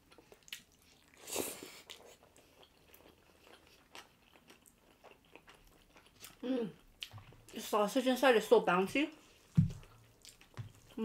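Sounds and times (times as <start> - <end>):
wet chewing clicks: 0.0 - 1.2, 9.5 - 11.0.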